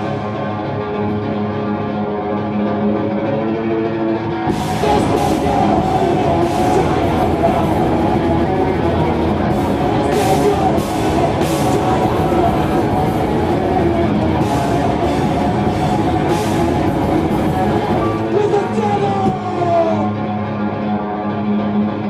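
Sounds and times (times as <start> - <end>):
thrash metal band playing: 4.5 - 20.7.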